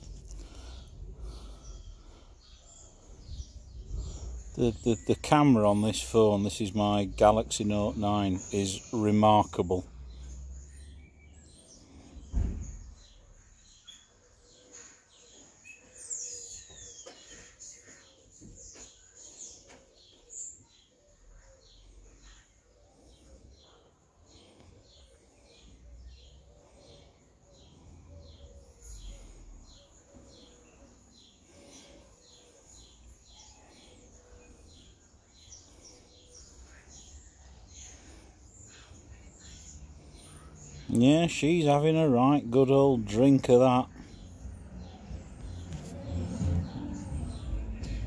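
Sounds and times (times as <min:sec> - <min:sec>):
low background rumble: 0:00.0 - 0:05.1, 0:44.1 - 0:48.0
birds chirping faintly: 0:00.0 - 0:48.0
dull thump: 0:12.3 - 0:12.9.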